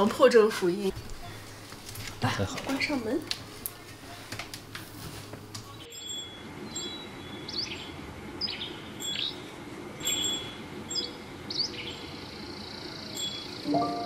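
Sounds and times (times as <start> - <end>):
steady low background noise: 0.0 - 14.0
small birds chirping: 5.6 - 13.7.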